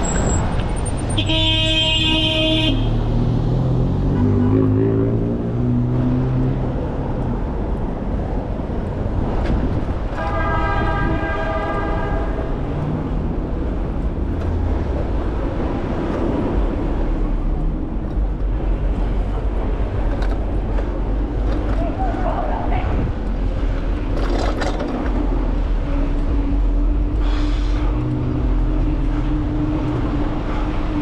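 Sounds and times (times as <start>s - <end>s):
city traffic rumbling: 0.0s - 31.0s
vehicle horn: 1.1s - 3.0s, 10.1s - 12.6s
low engine hum: 11.1s - 31.0s.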